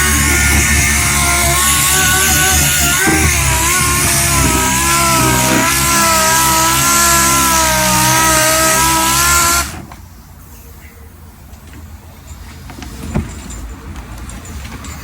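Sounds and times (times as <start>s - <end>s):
faint background noise: 9.7s - 15.0s.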